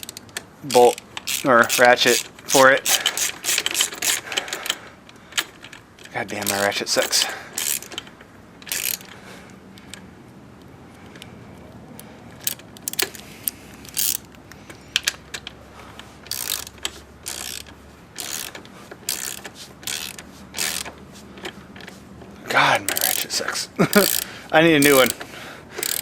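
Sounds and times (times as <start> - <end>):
socket ratchet clicking: 0.7 - 4.8, 6.5 - 8.0, 8.6 - 9.1, 12.4 - 14.4, 16.3 - 20.9, 22.8 - 26.0.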